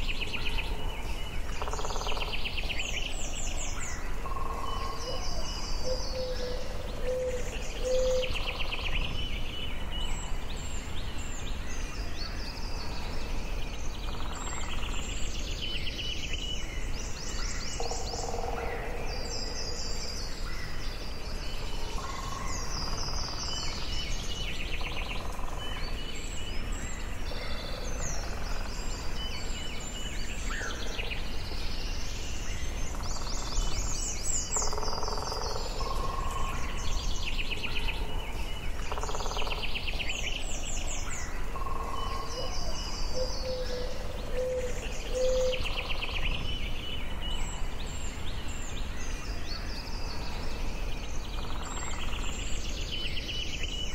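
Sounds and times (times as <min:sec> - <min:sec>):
songbirds singing: 0:00.0 - 0:53.9
lower bird calls: 0:32.6 - 0:50.5.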